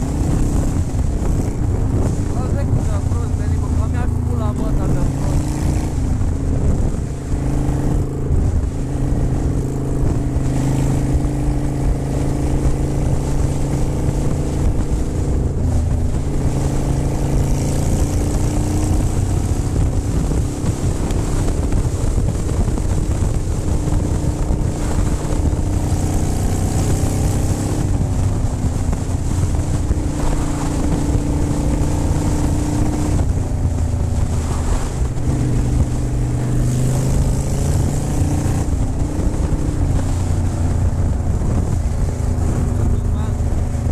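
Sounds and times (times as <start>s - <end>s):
motorcycle engine running: 0.0s - 43.9s
wind rushing over microphone: 0.0s - 43.9s.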